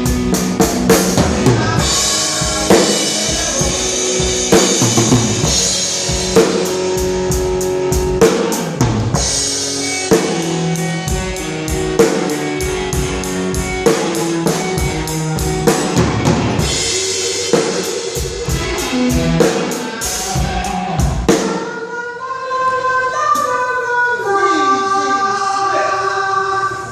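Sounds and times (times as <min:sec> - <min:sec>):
sustained guitar notes: 0:00.0 - 0:21.5
drum kit beat: 0:00.0 - 0:21.7.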